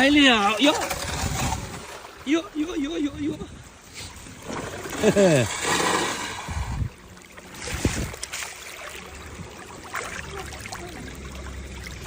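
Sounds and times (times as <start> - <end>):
splashes in shallow water: 4.0 - 12.0
water trickling over ground: 4.0 - 12.0.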